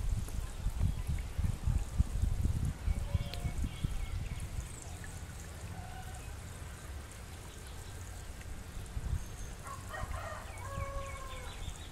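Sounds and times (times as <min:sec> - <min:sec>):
birds calling: 0:02.9 - 0:11.9.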